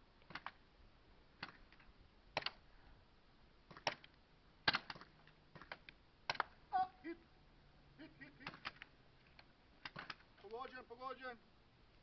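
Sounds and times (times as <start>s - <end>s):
airsoft guns firing pops: 0.2s - 0.6s, 1.4s - 2.6s, 3.7s - 6.6s, 8.4s - 8.9s, 9.8s - 10.8s.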